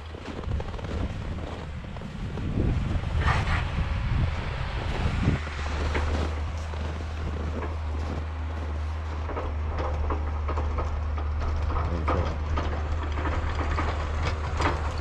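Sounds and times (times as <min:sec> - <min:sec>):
tractor engine running: 0:00.0 - 0:15.0
wind rumbling on microphone: 0:00.0 - 0:15.0.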